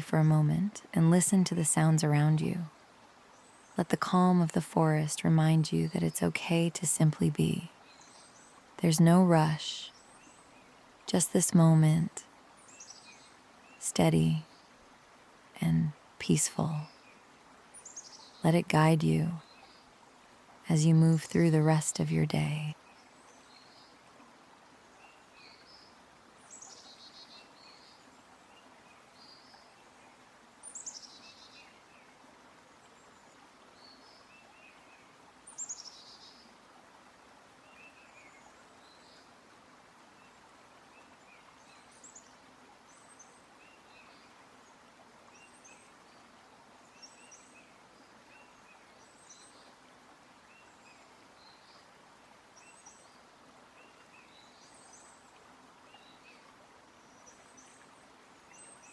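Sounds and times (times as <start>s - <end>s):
faint steady hiss: 0.0s - 58.9s
small birds chirping: 24.9s - 32.2s, 32.8s - 36.6s.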